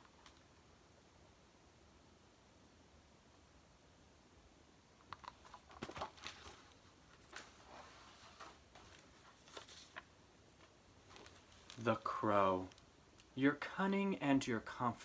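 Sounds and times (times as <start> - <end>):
book pages turning: 5.2 - 13.4.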